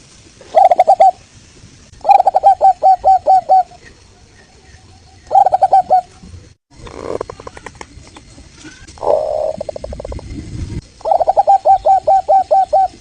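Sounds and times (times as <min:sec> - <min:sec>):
dove cooing in staccato notes: 0:02.0 - 0:03.7, 0:11.0 - 0:13.0.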